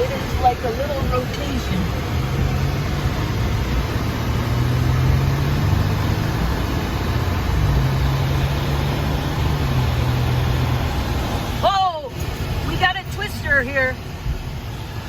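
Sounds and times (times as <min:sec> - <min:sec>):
car engine hum: 0:00.0 - 0:15.0
road noise rushing: 0:00.0 - 0:15.0.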